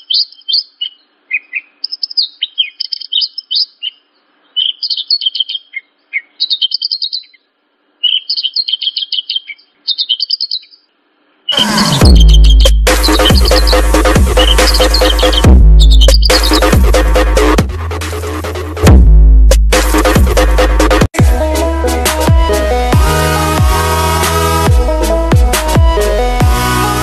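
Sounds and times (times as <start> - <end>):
lark singing: 0.0 - 16.8
electronic music with heavy beat: 11.6 - 27.0.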